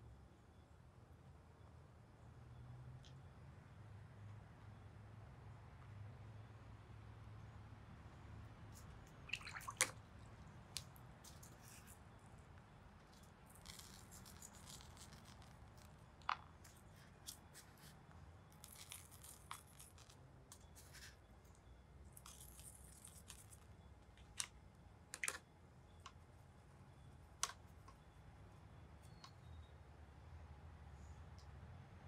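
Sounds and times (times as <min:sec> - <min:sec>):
salt sprinkling on paper: 0:11.2 - 0:12.0, 0:13.5 - 0:16.0.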